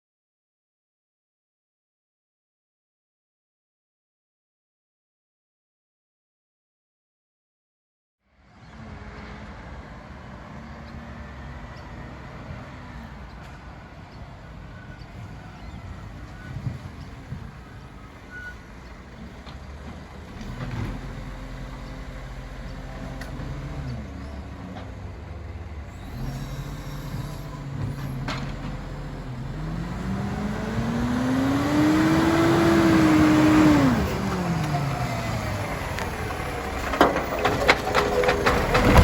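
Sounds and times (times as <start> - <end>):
truck diesel engine revving: 19.2 - 39.0.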